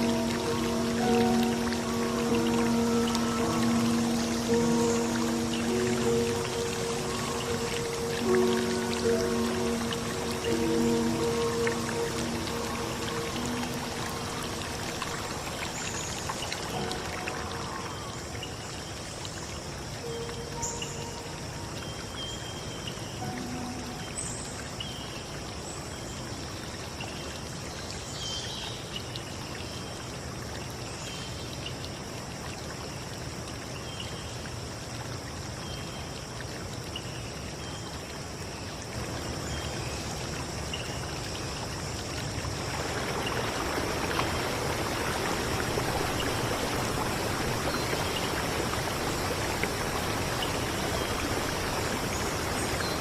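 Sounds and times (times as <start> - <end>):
steady high-pitched tone: 0.0 - 15.5, 23.2 - 24.8
stream water running: 0.0 - 53.0.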